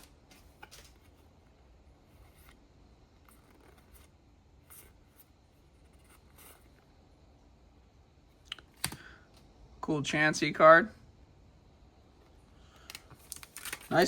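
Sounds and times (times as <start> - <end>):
trading cards sliding and brushing: 2.0 - 2.6, 3.2 - 6.9.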